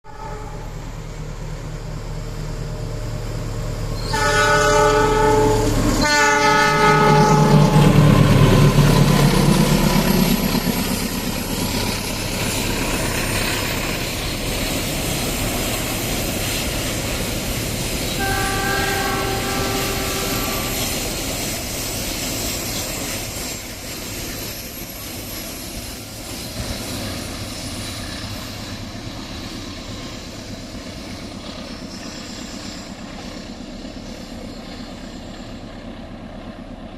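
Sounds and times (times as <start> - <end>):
locomotive multi-tone horn: 0.0 - 0.7, 4.0 - 8.4, 18.1 - 21.2
locomotive engine: 0.1 - 36.9.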